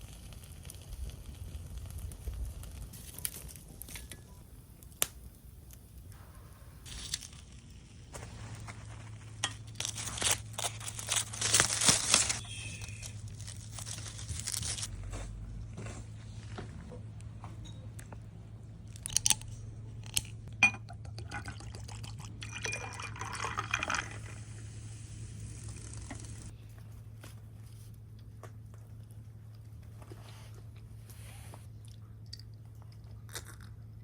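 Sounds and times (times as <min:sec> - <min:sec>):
paper crumpling and tearing: 0:06.8 - 0:14.9.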